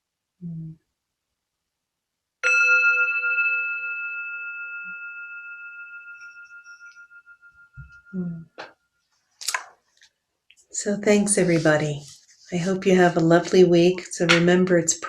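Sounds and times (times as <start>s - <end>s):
meditation bell ringing: 2.4s - 9.1s.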